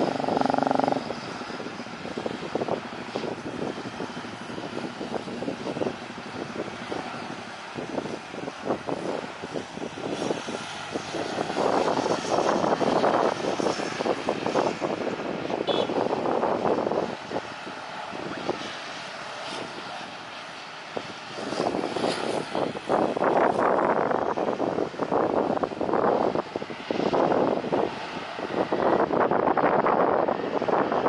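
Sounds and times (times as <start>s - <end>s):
jet engines fluttering roar: 0.0s - 31.0s.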